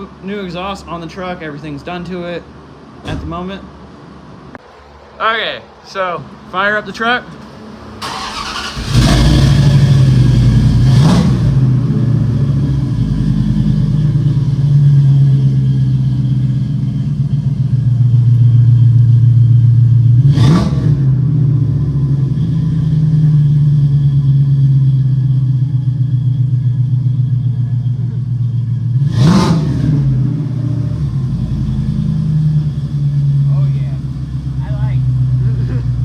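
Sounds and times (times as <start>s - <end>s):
truck engine starting and idling: 7.0s - 36.0s
engine revving: 8.0s - 27.0s, 28.5s - 36.0s.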